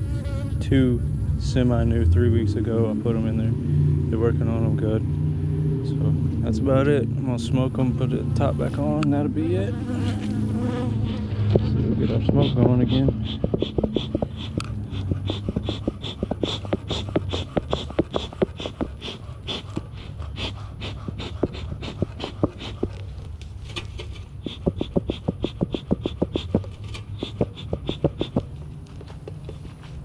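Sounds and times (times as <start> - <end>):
bees humming: 9.4 - 20.3
smoker bellows puffing: 9.9 - 28.5.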